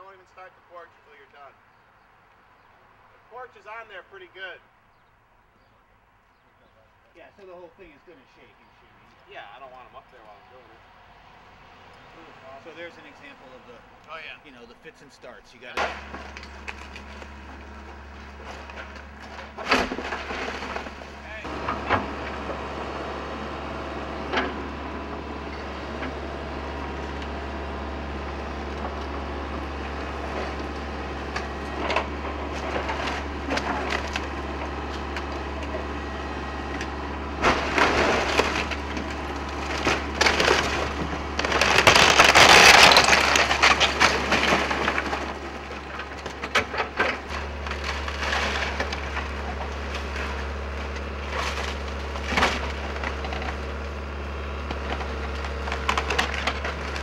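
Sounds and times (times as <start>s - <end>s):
low diesel drone: 6.6s - 57.0s
wood cracking and splintering: 15.8s - 57.0s
long crashing tear: 37.4s - 46.5s.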